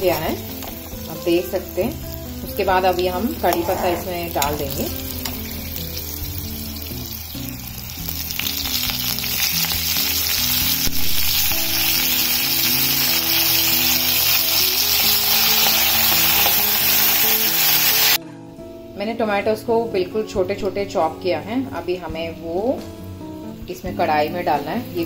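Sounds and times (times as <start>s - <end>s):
chillies sizzling in hot oil: 0.0s - 18.2s, 20.5s - 25.0s
spatula stirring: 3.3s - 5.7s.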